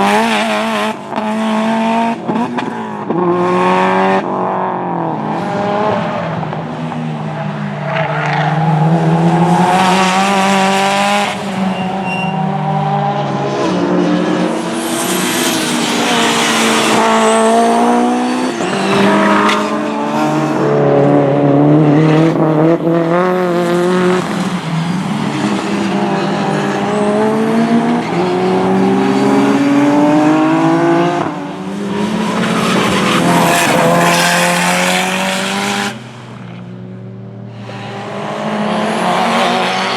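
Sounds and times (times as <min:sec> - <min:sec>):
race car engines revving: 0:00.0 - 0:39.9
tyre squeal: 0:11.4 - 0:12.7, 0:14.8 - 0:20.8.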